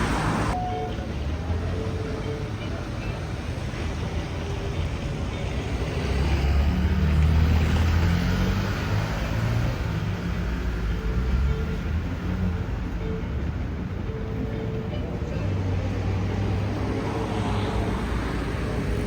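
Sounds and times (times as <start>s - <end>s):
vehicle passing: 0.0s - 0.6s, 14.9s - 19.0s
traffic noise: 0.0s - 19.0s.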